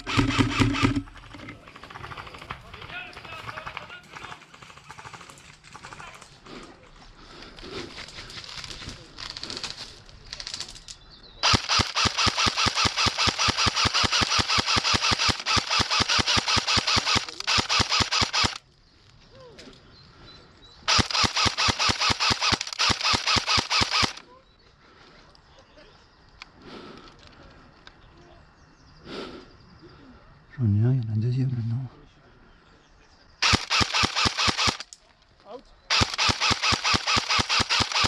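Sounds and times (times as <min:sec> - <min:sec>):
airsoft rifle firing bursts: 0:00.0 - 0:06.2, 0:11.4 - 0:18.6, 0:20.9 - 0:24.2, 0:33.4 - 0:34.9, 0:35.9 - 0:38.0.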